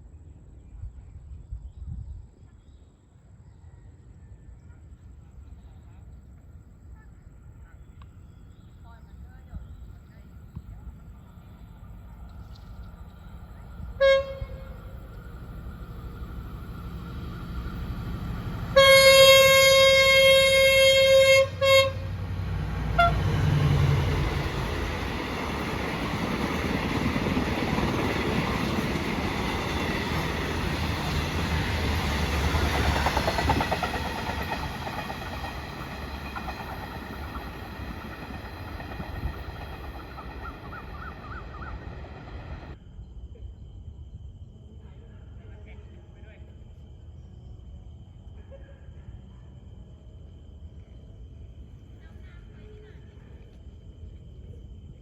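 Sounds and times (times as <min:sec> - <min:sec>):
train rumbling past: 0:08.2 - 0:42.8
train horn: 0:13.9 - 0:15.0, 0:18.6 - 0:24.0
train wheel clatter: 0:23.8 - 0:42.8.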